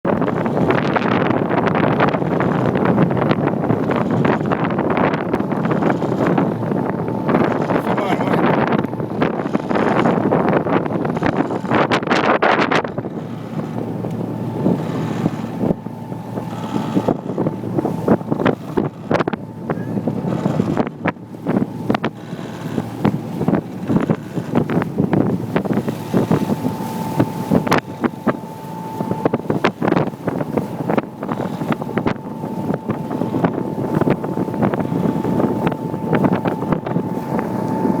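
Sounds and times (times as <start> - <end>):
motorboat engine and water rumble: 0.0 - 38.0
wind buffeting microphone: 0.0 - 38.0
steady high whine: 12.9 - 38.0.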